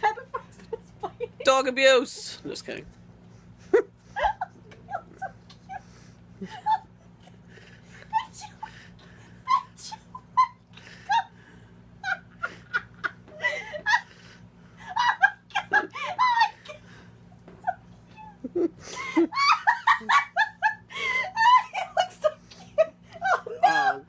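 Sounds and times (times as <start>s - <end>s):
steady low hum: 0.0s - 24.0s
people laughing: 12.0s - 16.9s, 18.4s - 24.0s.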